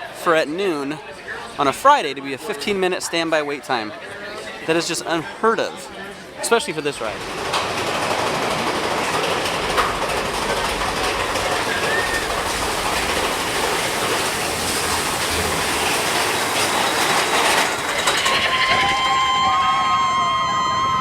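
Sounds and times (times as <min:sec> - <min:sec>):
train running on rails: 0:04.7 - 0:21.0.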